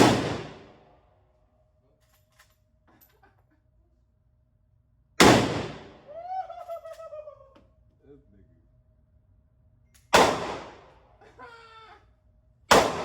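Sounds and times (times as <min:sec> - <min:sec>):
gunshots echoing: 0:00.0 - 0:00.8, 0:05.2 - 0:06.0, 0:10.2 - 0:10.9, 0:12.7 - 0:13.0.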